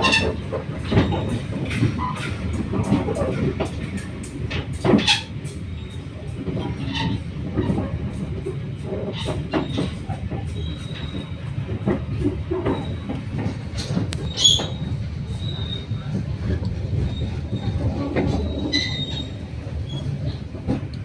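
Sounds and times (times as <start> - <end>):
wheel squeal: 0.0 - 2.3, 9.0 - 20.4
train rolling on track: 0.0 - 21.0
wheels clacking over rail joints: 0.0 - 21.0.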